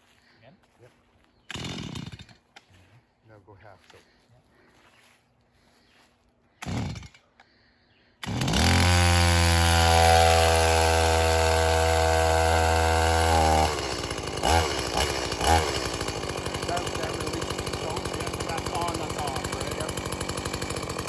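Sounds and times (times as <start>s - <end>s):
chainsaw engine starting and idling: 1.4s - 2.8s, 6.6s - 7.5s, 8.2s - 21.0s.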